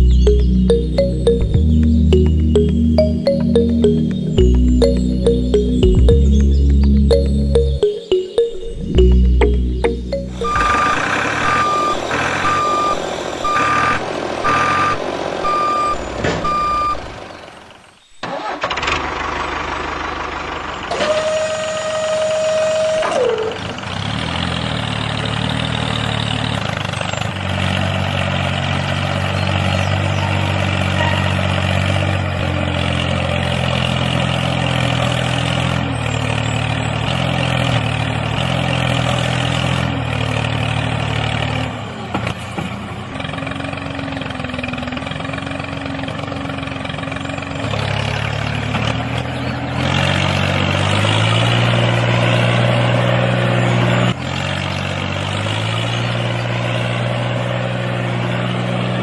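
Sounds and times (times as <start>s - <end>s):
steady tone falling in pitch: 0.0s - 14.0s
reversing alarm beeps: 10.4s - 17.1s
diesel tractor engine running: 10.5s - 21.5s, 31.5s - 59.0s.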